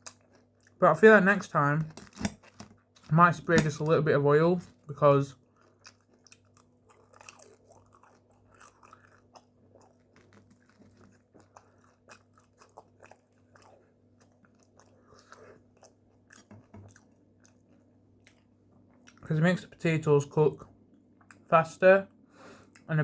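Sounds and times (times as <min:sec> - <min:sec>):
chewing food with crunches: 0:00.0 - 0:03.7, 0:04.6 - 0:19.3.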